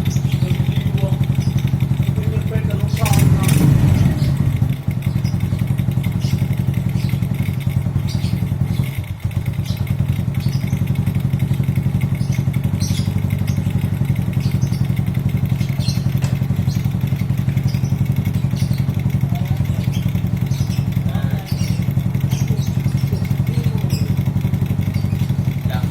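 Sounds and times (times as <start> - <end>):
motorcycle engine idling: 0.0 - 25.9.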